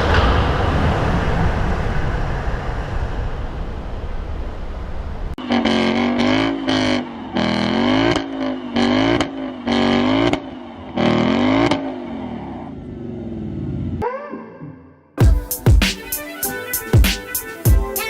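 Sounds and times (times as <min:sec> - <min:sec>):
car engine revving: 0:05.3 - 0:14.0.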